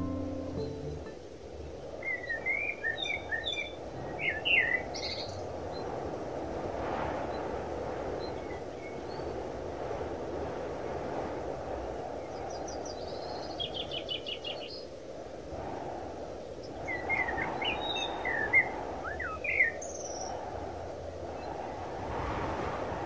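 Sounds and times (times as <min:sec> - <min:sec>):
low rushing background: 0:00.0 - 0:02.6
songbirds trilling and chirping: 0:01.7 - 0:05.9, 0:12.2 - 0:14.9, 0:16.5 - 0:20.3.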